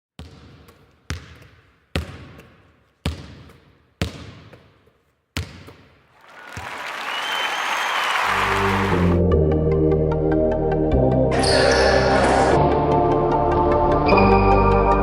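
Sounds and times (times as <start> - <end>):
basketball bouncing with echo: 0.2 - 6.1.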